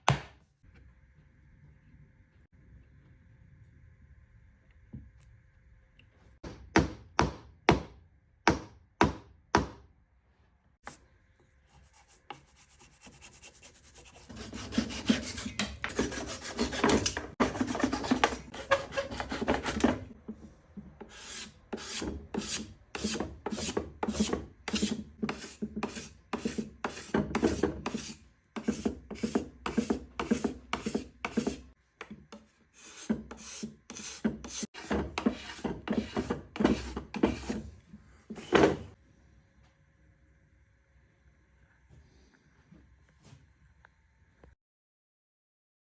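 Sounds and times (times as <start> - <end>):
hand tool strokes on wood: 11.9 - 20.1, 32.8 - 37.7.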